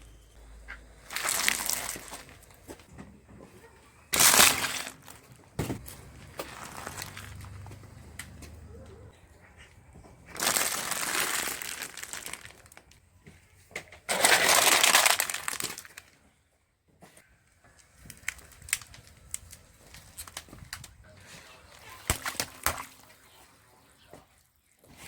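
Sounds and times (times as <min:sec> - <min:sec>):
objects crunching under car tyre: 0:00.7 - 0:02.9, 0:04.1 - 0:08.7, 0:10.3 - 0:13.0, 0:14.0 - 0:16.2, 0:17.7 - 0:21.0.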